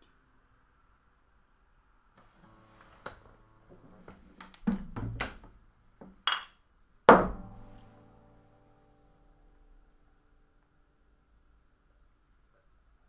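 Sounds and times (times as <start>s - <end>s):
guitars strumming chords: 7.2s - 10.8s.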